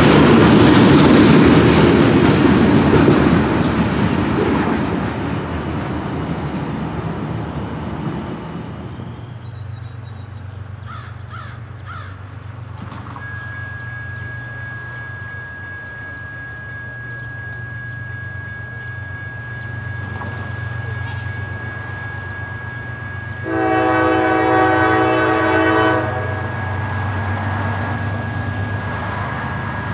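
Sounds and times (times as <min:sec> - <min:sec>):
freight train passing: 0:00.0 - 0:29.9
crow cawing: 0:10.8 - 0:12.2
low steady hum: 0:12.2 - 0:26.5
steady high-pitched tone: 0:13.2 - 0:29.9.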